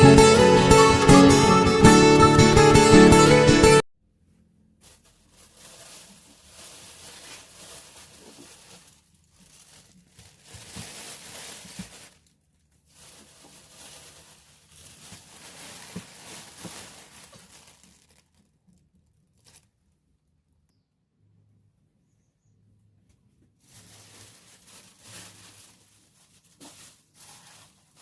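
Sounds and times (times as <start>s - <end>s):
crinkling food wrapping: 4.8s - 20.2s, 23.6s - 28.0s.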